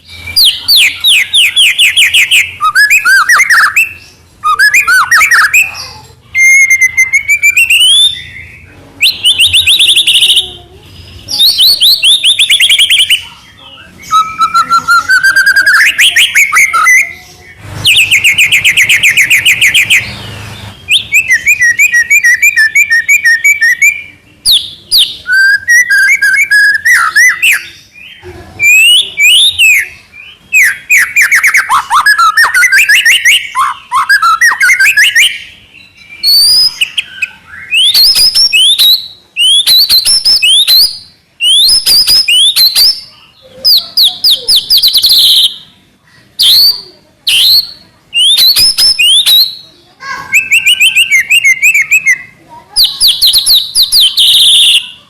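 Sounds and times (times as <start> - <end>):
bird singing trills and whistles: 0.0 - 55.0.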